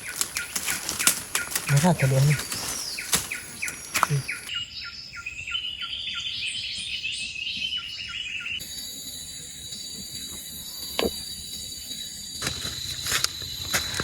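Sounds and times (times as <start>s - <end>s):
high insect drone: 0.0s - 4.5s, 8.6s - 14.0s
songbird chirping: 0.0s - 14.0s.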